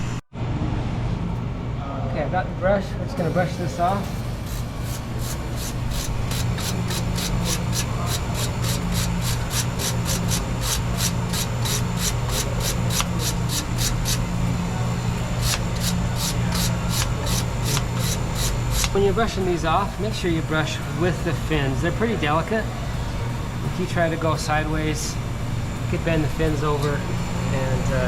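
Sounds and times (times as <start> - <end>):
refrigeration unit humming: 0.0 - 28.0
brush scraping metal fins: 4.5 - 14.2.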